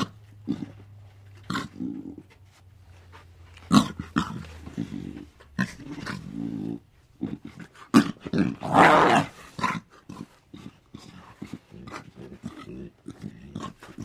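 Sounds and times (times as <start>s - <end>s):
animal rough call: 0.0s - 2.3s, 3.6s - 14.0s
animal held pitched call: 8.6s - 9.4s.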